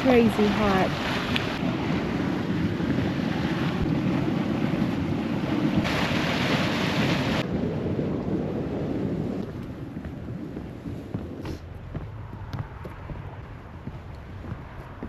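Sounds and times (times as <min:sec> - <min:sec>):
hot spring water churning: 0:00.0 - 0:07.5
wind rumble on microphone: 0:00.0 - 0:15.0.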